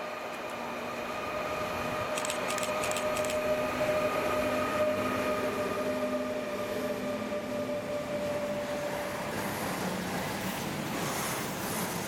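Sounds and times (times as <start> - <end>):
electric locomotive whine: 0.0 - 12.0
wheels rumbling on rail: 0.0 - 12.0
wheels clicking over track: 2.1 - 3.4.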